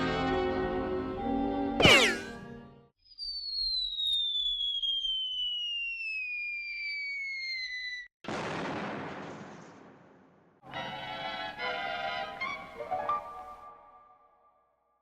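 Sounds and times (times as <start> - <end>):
cartoon falling whistle: 1.8 - 2.4, 3.0 - 8.1
explosion-like burst: 8.3 - 10.2.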